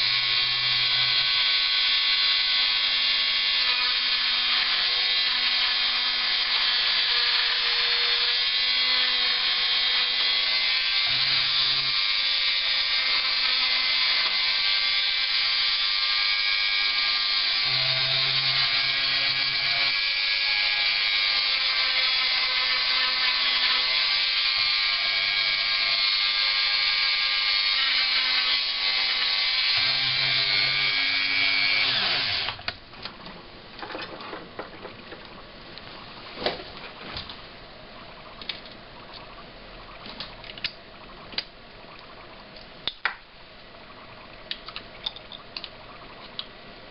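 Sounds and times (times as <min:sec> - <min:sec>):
rotary tool whining: 0:00.0 - 0:34.8.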